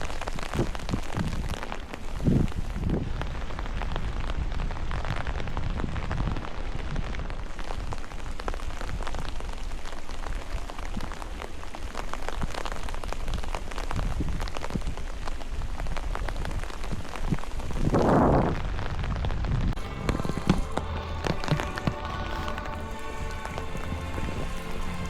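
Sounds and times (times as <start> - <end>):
raindrops striking close by: 0.0 - 25.0
low rumble: 18.3 - 25.0.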